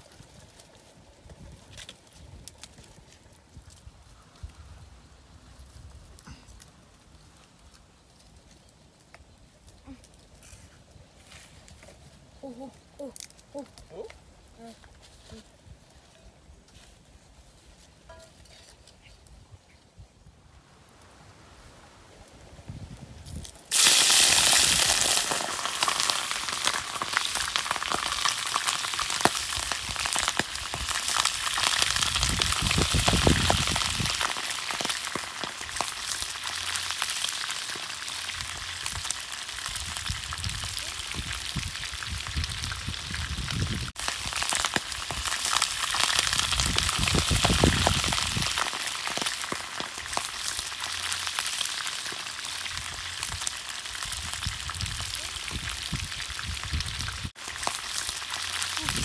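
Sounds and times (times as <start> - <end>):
food sizzling in hot oil: 23.3 - 59.0.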